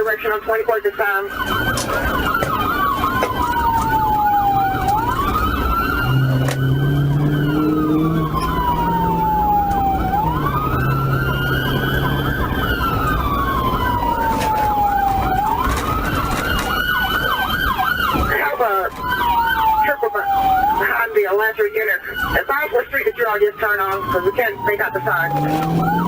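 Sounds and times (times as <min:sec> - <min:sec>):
engine and road noise hum: 0:00.0 - 0:26.0
police siren wailing: 0:00.0 - 0:26.0
siren rapid yelping: 0:00.4 - 0:26.0.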